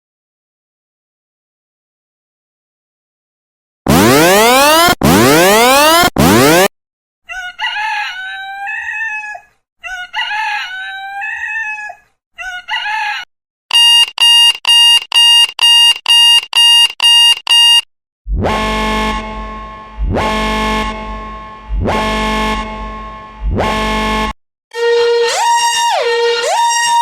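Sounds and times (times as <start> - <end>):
electronic alarm beeping: 3.9 - 6.7, 13.7 - 17.9
synth alarm tone: 3.9 - 6.7, 13.7 - 17.8
recorded rooster crowing: 7.3 - 13.2.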